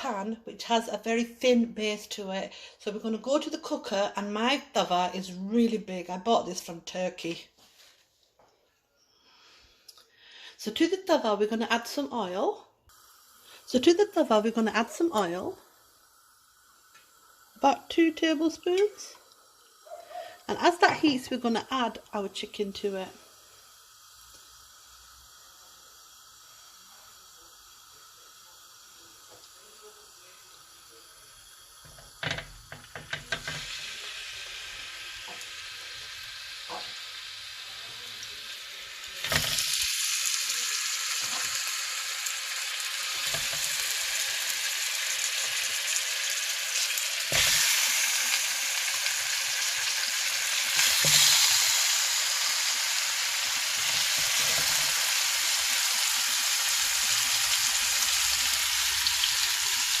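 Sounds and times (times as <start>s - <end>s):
chicken sizzling in hot oil: 11.8s - 60.0s
knocks on pan: 31.9s - 33.7s.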